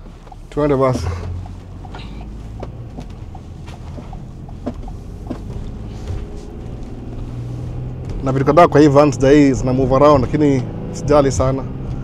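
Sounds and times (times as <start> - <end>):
van engine humming: 0.0 - 12.0.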